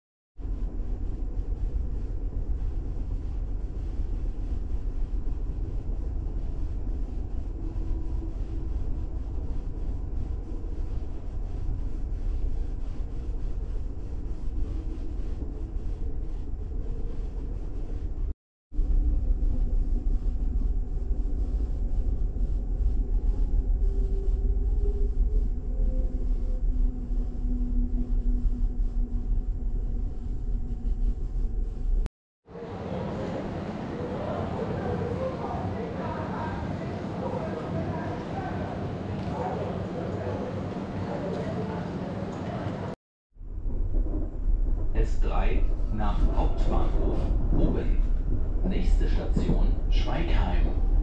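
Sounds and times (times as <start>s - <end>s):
train running rumble: 43.5s - 51.0s.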